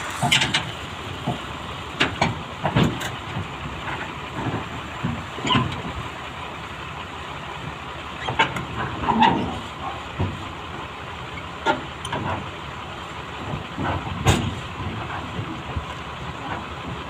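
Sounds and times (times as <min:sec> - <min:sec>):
excavator running: 0:00.0 - 0:17.0
metallic clanks and knocks: 0:00.2 - 0:06.0, 0:13.5 - 0:15.6.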